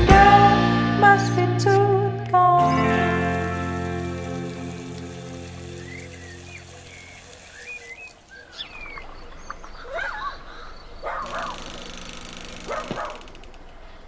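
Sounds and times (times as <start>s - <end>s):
birds chirping and whistling: 5.0s - 11.7s
harsh bird calls: 5.5s - 14.0s.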